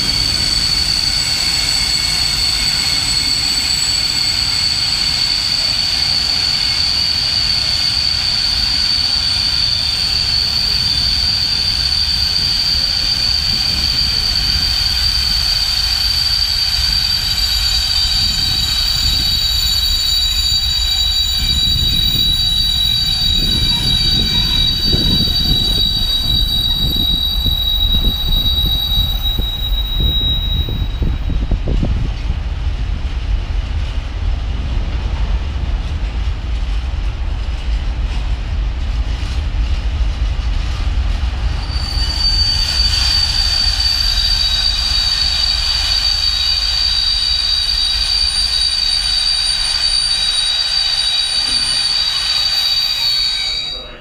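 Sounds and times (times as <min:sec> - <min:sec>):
high wheel squeal: 0:00.0 - 0:32.3, 0:40.7 - 0:54.0
train wheels rumbling on rails: 0:00.0 - 0:54.0.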